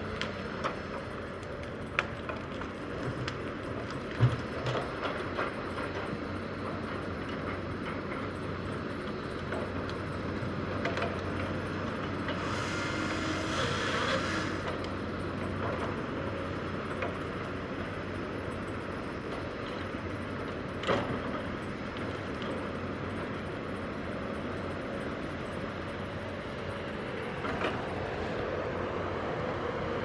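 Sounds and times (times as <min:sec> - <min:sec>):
diesel engine running: 0:11.4 - 0:15.8
hiss: 0:12.3 - 0:14.7.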